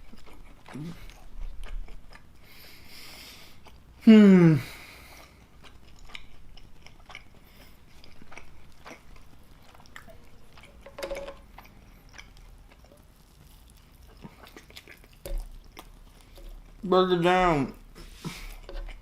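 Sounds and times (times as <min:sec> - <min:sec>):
person humming low: 0:04.0 - 0:04.7
wet chewing mouth clicks: 0:05.2 - 0:16.9.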